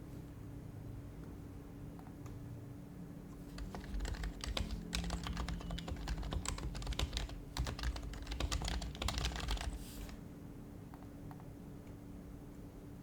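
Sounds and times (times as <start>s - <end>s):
fast typing on keyboard: 3.4s - 10.2s.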